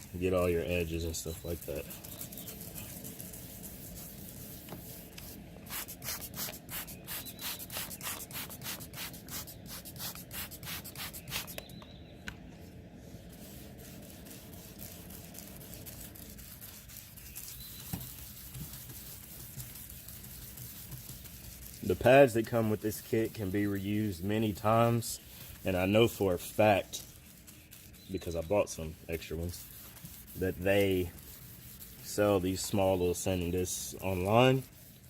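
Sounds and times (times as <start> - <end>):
sanding pad scratching plastic: 0.0 - 11.6, 13.2 - 35.0.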